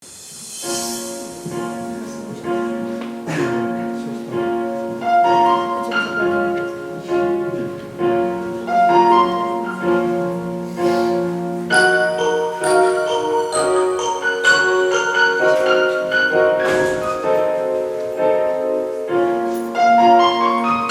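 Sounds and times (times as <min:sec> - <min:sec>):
keyboard sustained chords: 0:00.6 - 0:20.9
bell-like melody: 0:11.6 - 0:20.9.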